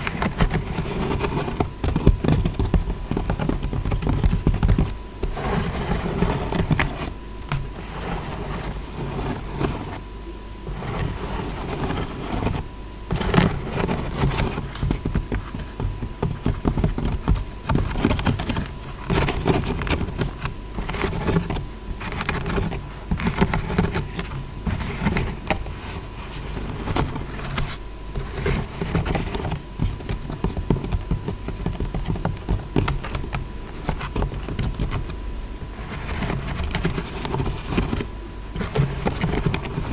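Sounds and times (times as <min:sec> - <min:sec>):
fingertip tapping and scratching: 0:00.0 - 0:39.9.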